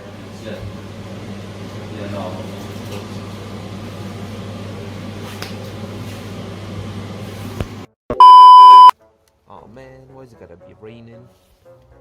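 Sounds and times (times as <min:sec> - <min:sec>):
loud high bleep tone: 0:08.2 - 0:08.9.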